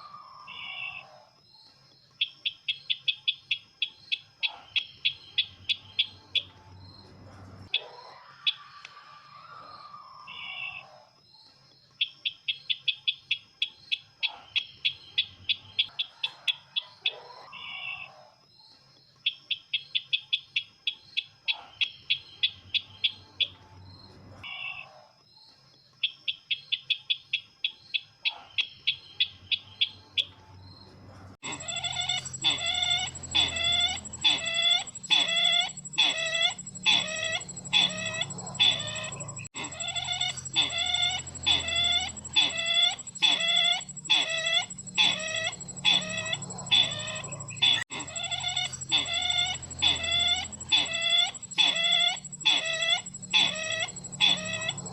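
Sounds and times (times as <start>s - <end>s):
bird call trill: 31.4s - 54.9s
slower repeated bird notes: 31.4s - 54.9s
steady high whine: 31.4s - 54.9s.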